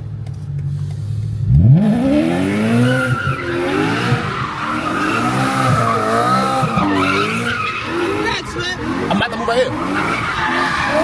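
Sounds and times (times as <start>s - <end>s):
car engine revving: 0.0s - 11.0s
tyres squealing: 2.7s - 11.0s.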